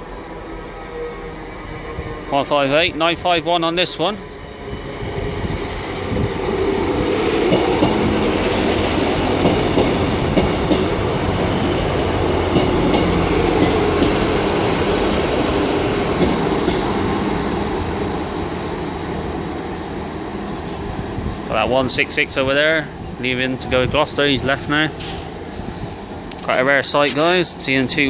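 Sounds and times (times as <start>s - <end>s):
diesel train engine rumble: 0.0s - 28.0s
train wheels clicking over track: 5.6s - 17.7s, 24.3s - 28.0s.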